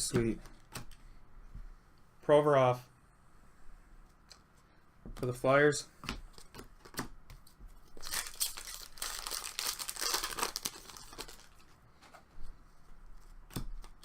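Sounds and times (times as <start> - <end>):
card pack wrapper crinkling and tearing: 8.0 - 11.7.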